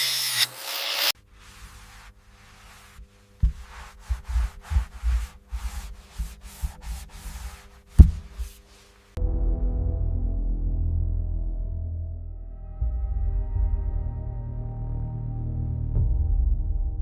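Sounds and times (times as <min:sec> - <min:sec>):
rough rubbing on a surface: 0:01.2 - 0:09.2
ambient music with low drone: 0:09.2 - 0:17.0.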